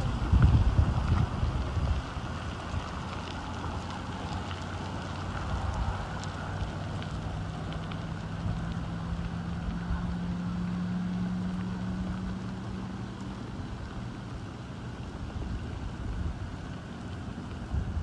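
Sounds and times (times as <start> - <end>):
rain hissing: 0.0 - 18.0
vehicle engine humming: 0.0 - 18.0.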